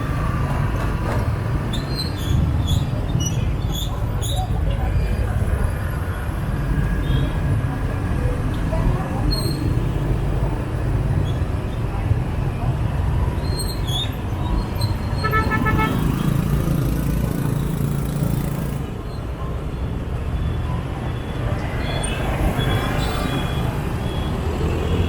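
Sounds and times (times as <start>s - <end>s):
motorbike traffic rumble: 0.0s - 25.0s
vehicle horn toots: 15.2s - 16.1s.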